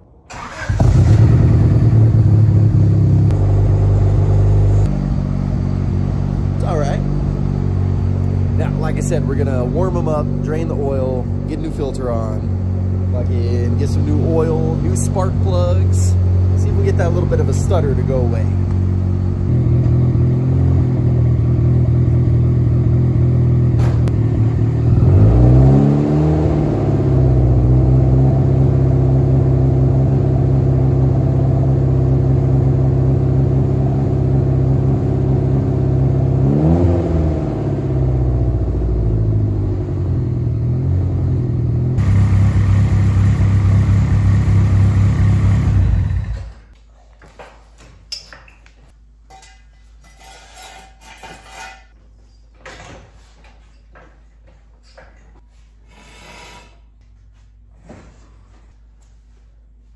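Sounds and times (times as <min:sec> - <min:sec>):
car engine idling and revving: 0:00.4 - 0:46.7.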